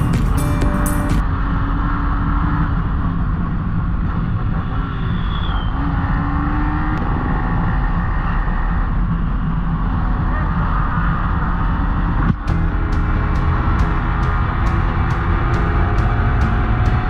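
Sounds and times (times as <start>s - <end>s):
motorcycle engine running: 0.0s - 1.2s, 12.4s - 17.0s.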